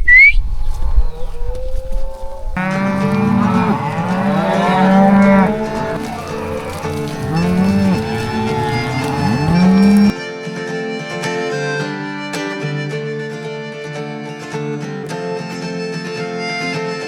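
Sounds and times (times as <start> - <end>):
cattle mooing: 2.6 - 10.1.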